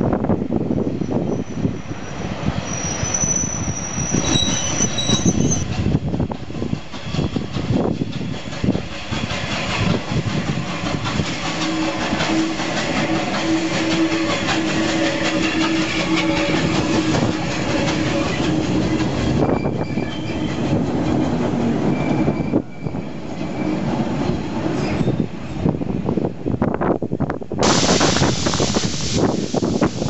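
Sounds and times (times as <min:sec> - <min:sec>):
steam locomotive drifting in: 0:00.0 - 0:26.9, 0:27.6 - 0:30.0
train wheels squealing on a curve: 0:00.8 - 0:05.8, 0:10.8 - 0:20.8, 0:21.8 - 0:25.6.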